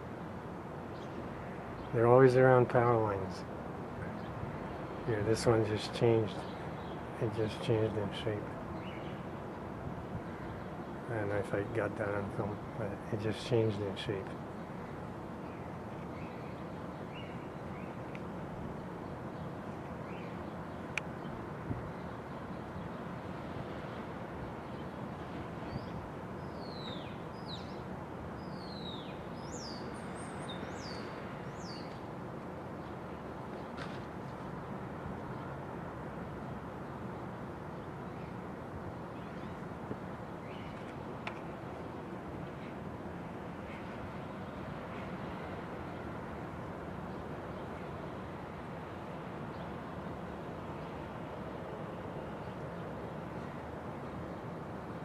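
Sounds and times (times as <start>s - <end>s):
outdoor background noise: 0.0s - 55.0s
bird chirping: 8.8s - 9.2s, 15.4s - 18.2s, 25.6s - 27.8s, 28.4s - 32.0s.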